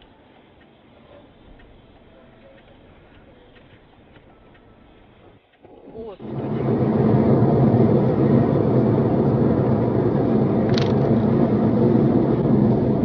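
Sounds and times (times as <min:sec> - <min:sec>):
car engine and road noise: 0:02.7 - 0:13.0.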